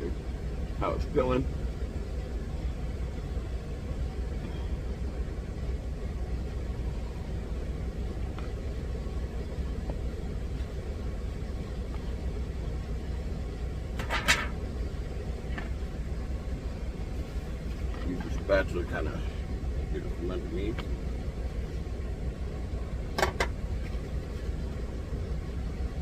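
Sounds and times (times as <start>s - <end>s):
truck engine idling: 0.0s - 26.0s.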